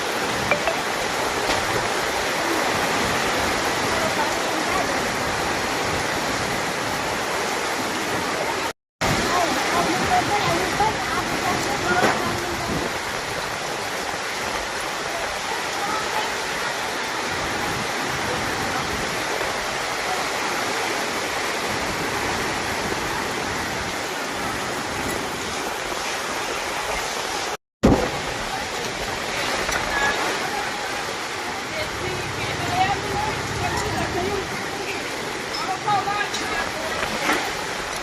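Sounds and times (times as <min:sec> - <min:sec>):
heavy rain pouring: 0:00.0 - 0:38.0.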